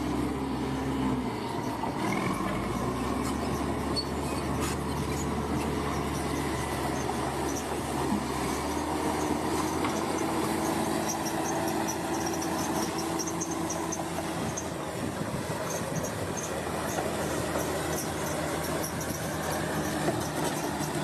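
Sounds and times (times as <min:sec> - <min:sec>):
bulldozer diesel engine running: 0:00.0 - 0:21.0
short high-pitched squeaks: 0:03.2 - 0:14.7.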